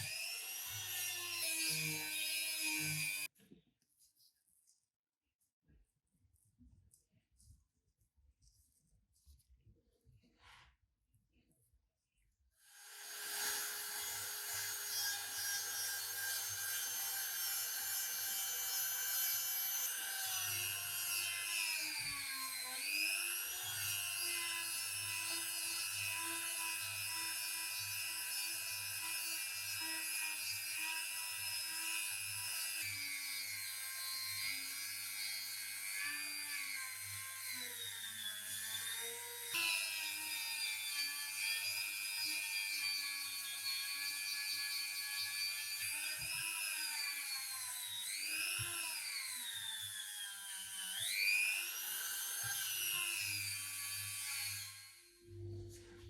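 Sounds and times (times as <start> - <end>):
power tool motor whining: 45.1 - 55.5.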